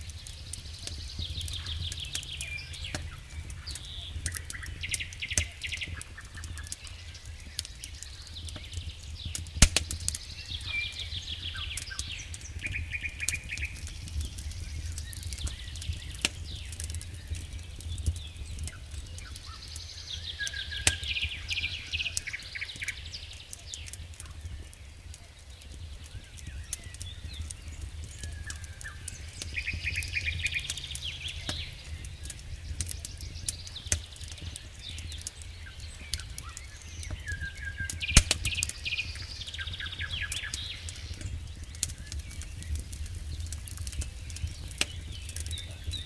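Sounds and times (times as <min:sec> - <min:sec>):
steady low rumble: 0:00.0 - 0:06.4, 0:26.5 - 0:37.2
campfire crackling and popping: 0:00.0 - 0:46.0
songbirds singing: 0:00.0 - 0:46.0.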